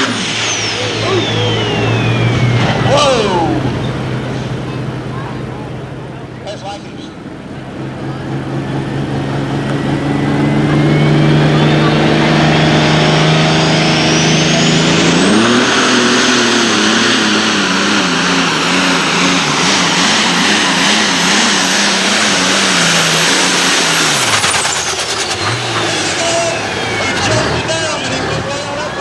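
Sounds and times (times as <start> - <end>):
tractor engine at full throttle: 0.0 - 29.0
turbocharger whine: 0.0 - 29.0.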